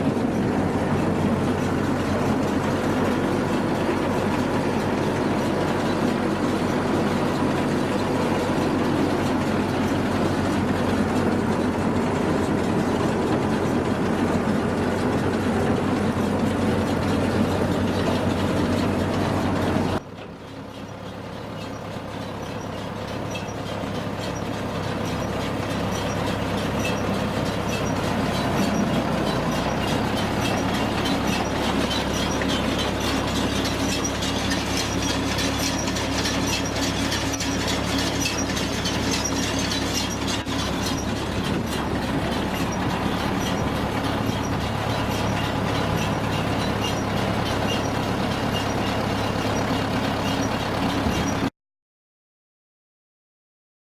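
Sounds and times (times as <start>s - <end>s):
tractor engine drone: 0.0s - 51.5s
baler chains and rollers clattering: 20.7s - 51.5s.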